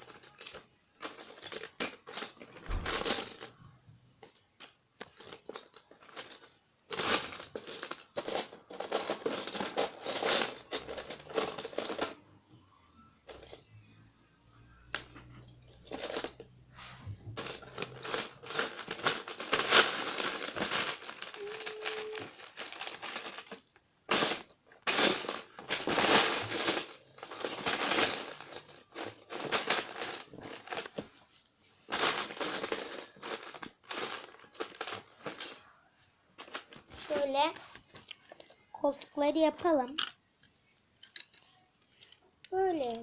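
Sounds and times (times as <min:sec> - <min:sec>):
plastic bricks clattering: 0:00.0 - 0:03.6, 0:04.2 - 0:12.2, 0:15.8 - 0:16.5, 0:17.4 - 0:35.7.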